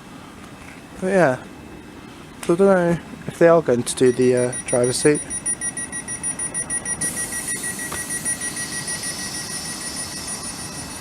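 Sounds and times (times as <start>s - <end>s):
electronic warning beeper: 4.0s - 11.0s
hiss: 7.2s - 10.8s.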